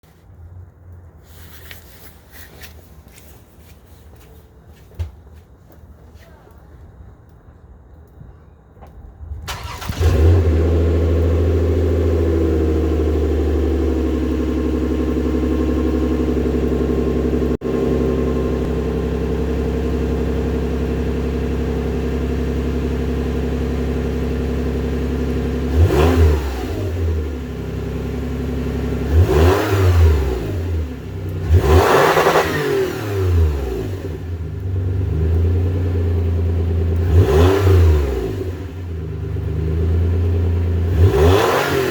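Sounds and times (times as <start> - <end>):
car engine idling: 6.8 - 26.0, 33.4 - 41.1
engine throttle blips: 8.0 - 41.9.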